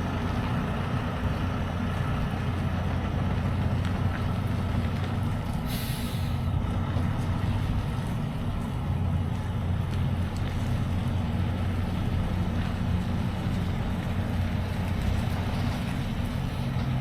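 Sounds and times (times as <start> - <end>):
truck diesel engine running: 0.0 - 17.0
air hiss: 5.7 - 6.5.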